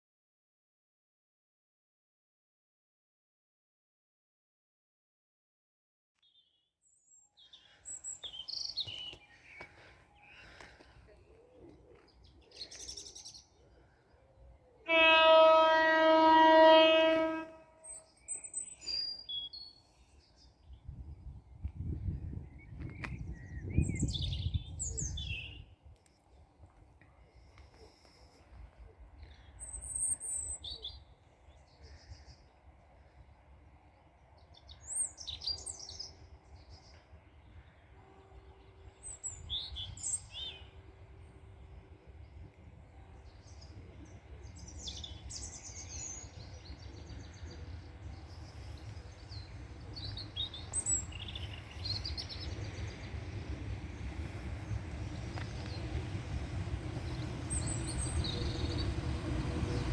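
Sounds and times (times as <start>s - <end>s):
small birds chirping: 6.2s - 14.8s, 34.0s - 59.9s
train rumbling: 32.5s - 59.9s.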